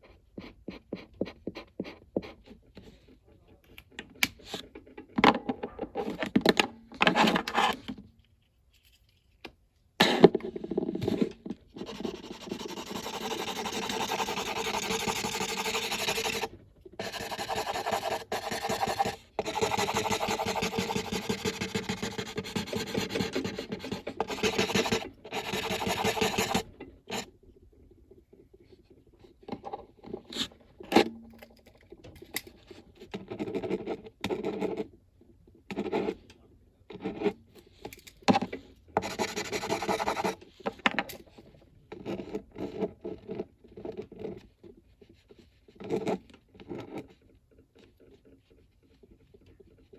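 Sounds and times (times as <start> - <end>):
coloring tool scratching on paper: 0.0 - 2.9, 11.1 - 27.3, 39.0 - 40.4.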